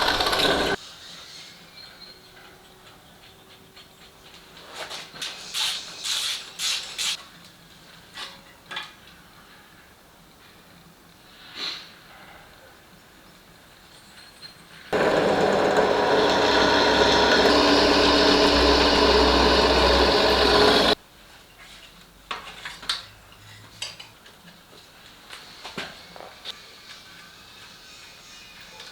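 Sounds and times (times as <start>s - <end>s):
power tool running: 0.0s - 0.8s, 15.0s - 21.0s.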